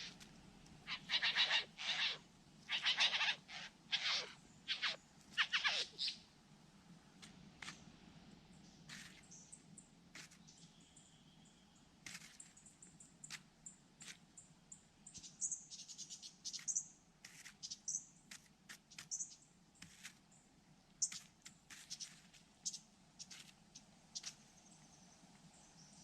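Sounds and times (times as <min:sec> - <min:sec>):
harsh bird calls: 0:00.9 - 0:06.2.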